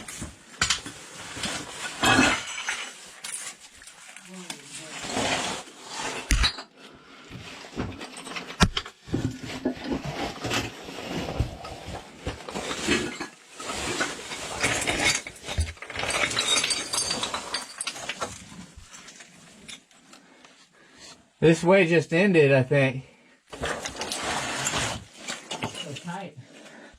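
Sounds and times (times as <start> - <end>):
stones and equipment clinking: 0.0 - 6.8, 7.7 - 20.1, 23.5 - 26.5
clothing scraping against rock: 1.0 - 6.4, 23.5 - 26.9.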